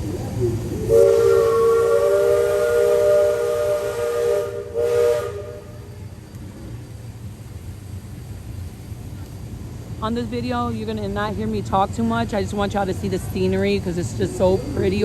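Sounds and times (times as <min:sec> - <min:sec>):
steam hissing: 0:00.0 - 0:15.0
steam whistle chord: 0:00.8 - 0:05.8.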